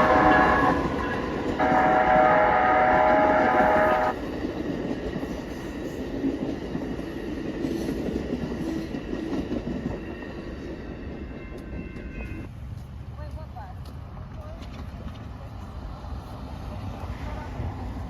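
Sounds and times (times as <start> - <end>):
train horn: 0.0 - 4.2
train rumbling on rails: 0.0 - 18.0.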